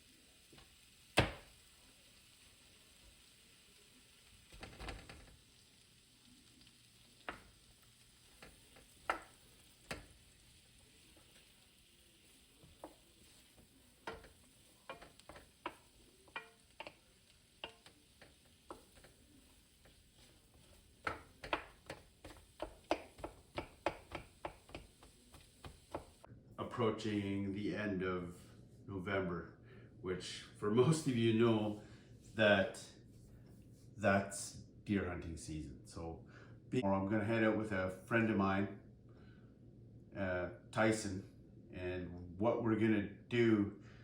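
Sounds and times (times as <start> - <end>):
utensil clicking against cookware: 14.0 - 17.0, 19.8 - 26.1.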